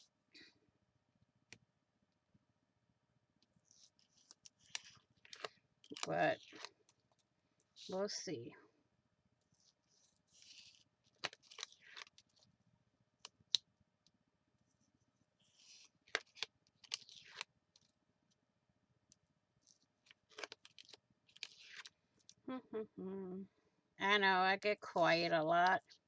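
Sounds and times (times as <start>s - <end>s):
paper rustling: 3.6s - 7.2s, 9.5s - 12.5s, 14.7s - 17.9s, 19.6s - 22.3s.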